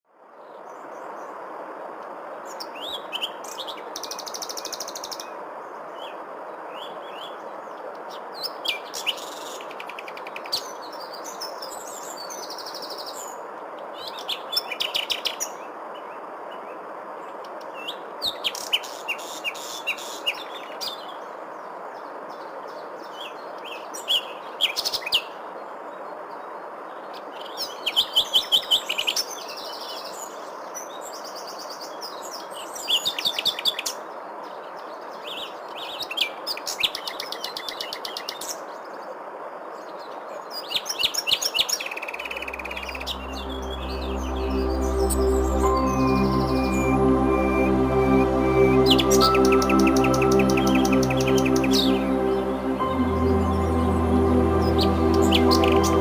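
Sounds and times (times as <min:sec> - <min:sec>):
steady background hiss: 0:00.2 - 0:56.0
birds chirping and trilling: 0:42.2 - 0:56.0.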